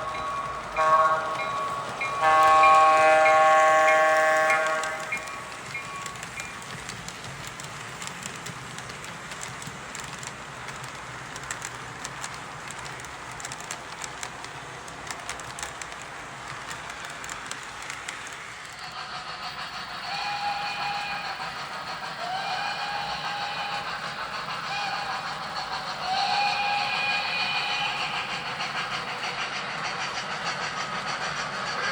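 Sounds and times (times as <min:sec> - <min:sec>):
multi-tone train whistle: 0:00.0 - 0:06.5, 0:18.8 - 0:28.9
model train hissing and clicking: 0:00.0 - 0:31.9.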